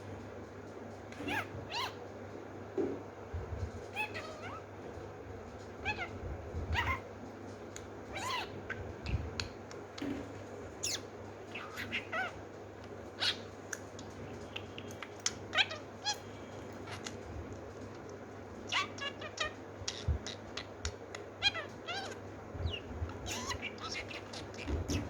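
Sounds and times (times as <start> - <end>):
parrot chirping and squeaking: 1.2 - 2.0, 3.9 - 4.6, 5.8 - 6.1, 6.7 - 7.0, 8.1 - 9.4, 10.8 - 12.4, 13.2 - 13.5, 14.4 - 17.2, 18.7 - 25.0.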